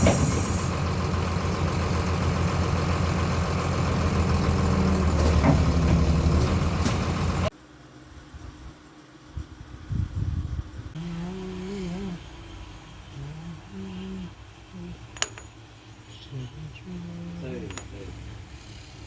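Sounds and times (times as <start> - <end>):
engine idling: 0.0 - 7.5.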